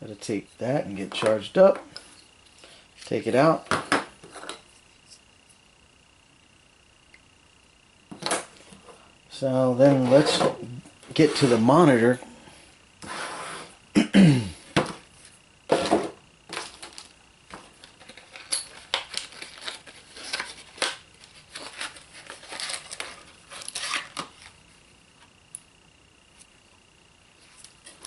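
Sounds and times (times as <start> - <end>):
packaging crinkling and rustling: 17.7 - 24.6.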